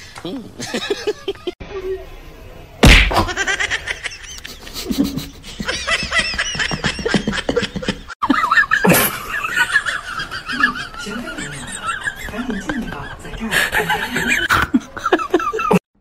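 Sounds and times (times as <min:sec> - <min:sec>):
person giggling: 0:04.3 - 0:15.8.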